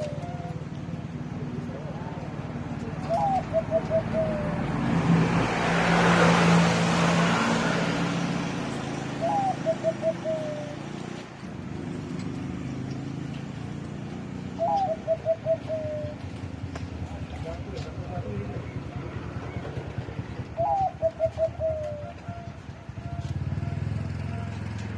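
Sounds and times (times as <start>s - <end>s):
dove cooing: 0.0s - 2.2s, 2.8s - 4.8s, 9.0s - 11.1s, 14.4s - 16.6s, 18.6s - 24.5s
passing vehicle rush: 0.0s - 24.9s.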